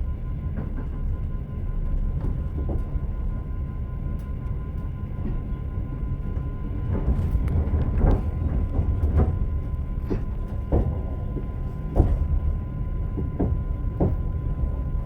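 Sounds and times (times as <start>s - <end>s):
railway car rumble: 0.0s - 15.0s
train wheels knocking on rail joints: 6.4s - 15.0s.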